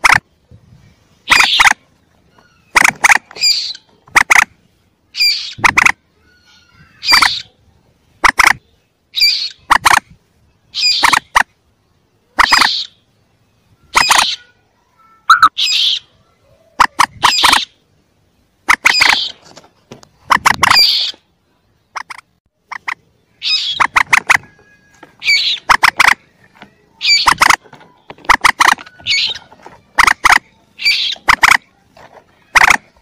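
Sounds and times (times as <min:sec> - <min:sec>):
moorhen calls: 0:01.2 - 0:04.5, 0:05.1 - 0:07.6, 0:08.2 - 0:11.5, 0:12.2 - 0:13.1, 0:13.7 - 0:14.6, 0:15.3 - 0:17.8, 0:18.7 - 0:19.5, 0:20.2 - 0:21.3, 0:21.9 - 0:31.8.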